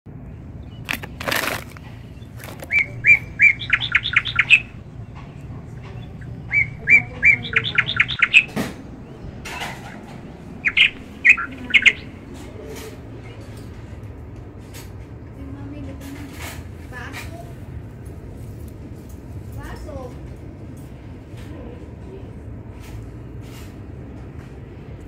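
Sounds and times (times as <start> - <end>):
songbird singing: 0.1 - 13.9
rustling: 0.8 - 2.8.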